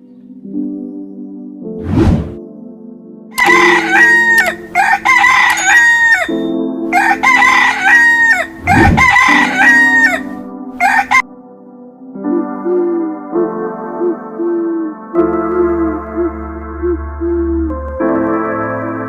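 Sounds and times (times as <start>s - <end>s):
background music: 0.0s - 19.0s
rooster crowing: 3.4s - 11.2s.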